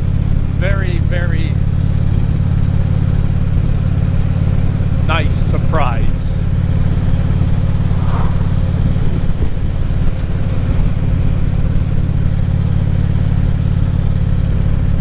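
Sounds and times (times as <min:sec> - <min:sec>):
motorcycle engine cruising: 0:00.0 - 0:15.0
rushing wind: 0:06.1 - 0:11.6.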